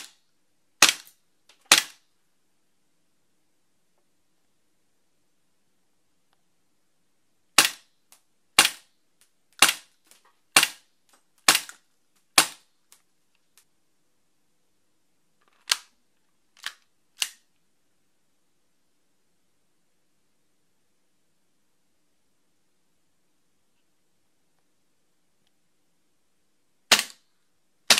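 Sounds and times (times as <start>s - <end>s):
airsoft pistol shots: 0.8s - 1.1s, 1.7s - 2.0s, 7.6s - 7.9s, 8.6s - 8.9s, 9.6s - 9.9s, 10.6s - 10.8s, 11.5s - 11.8s, 12.4s - 12.6s, 26.9s - 27.2s.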